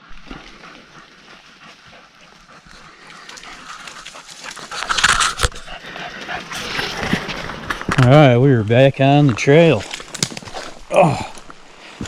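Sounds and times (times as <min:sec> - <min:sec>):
dog panting: 0:00.1 - 0:06.7.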